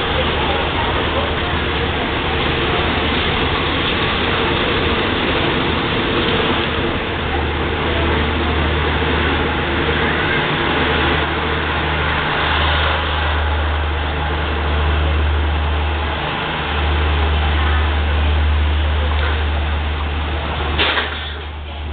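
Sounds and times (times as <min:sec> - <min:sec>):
diesel train rumble: 0:00.0 - 0:21.9.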